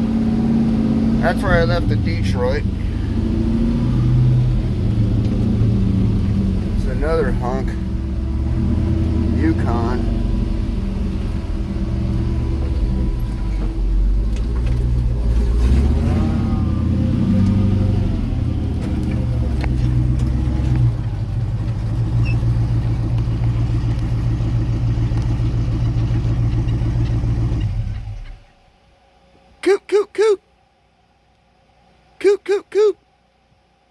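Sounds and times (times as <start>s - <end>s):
truck engine while driving: 0.0s - 30.4s.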